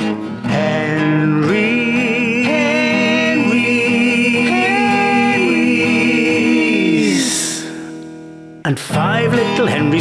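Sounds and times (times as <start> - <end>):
person singing long notes: 0.5 - 8.0.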